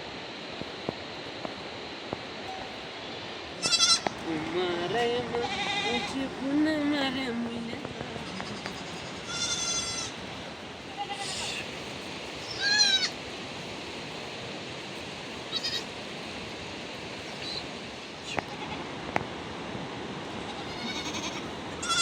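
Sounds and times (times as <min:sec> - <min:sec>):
goats bleating: 0:03.6 - 0:11.8, 0:12.4 - 0:13.2, 0:15.5 - 0:15.9, 0:20.3 - 0:22.0.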